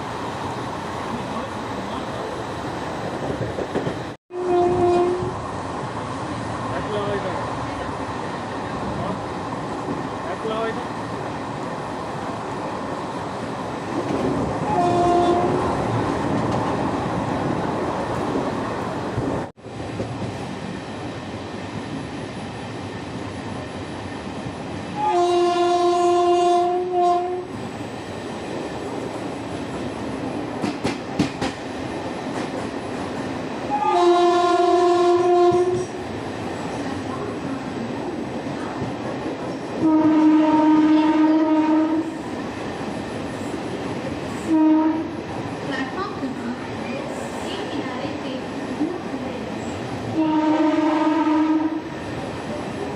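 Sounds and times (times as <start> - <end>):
train rumbling: 0.0 - 52.9
locomotive horn blasts: 4.3 - 5.3, 14.7 - 15.6, 25.0 - 27.5, 33.7 - 35.8, 39.8 - 42.1, 44.5 - 45.1, 50.2 - 51.8.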